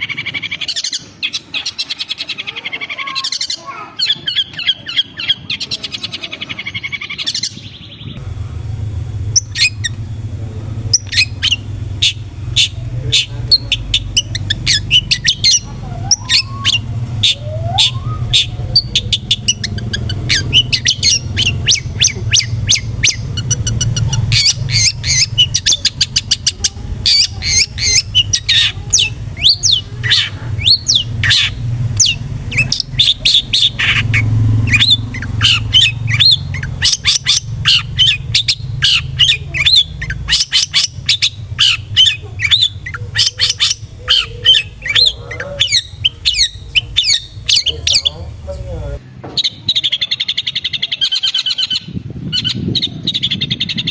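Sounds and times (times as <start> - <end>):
bird harsh chattering calls: 0.0 - 8.2, 8.9 - 53.9
low steady hum: 6.8 - 49.7.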